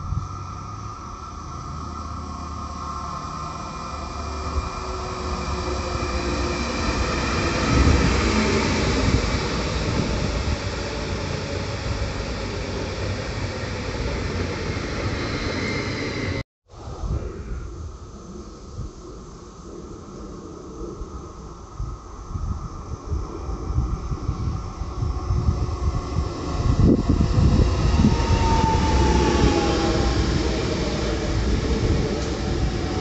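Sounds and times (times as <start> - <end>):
train running past: 0.0 - 16.4, 24.2 - 33.0.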